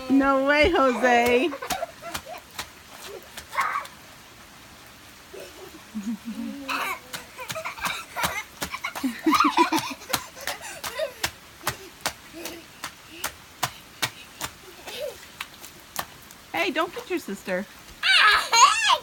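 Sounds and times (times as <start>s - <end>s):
people laughing: 5.5s - 11.2s.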